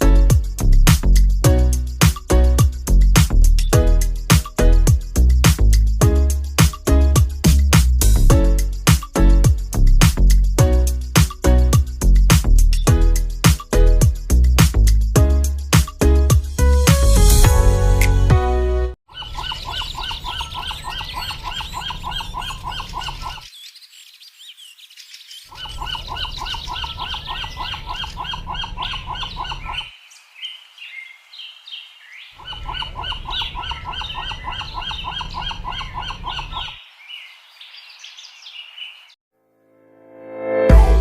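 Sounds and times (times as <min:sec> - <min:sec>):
high bird chatter: 0:12.6 - 0:13.8, 0:19.1 - 0:39.2
rapid run of bird calls: 0:19.1 - 0:39.1.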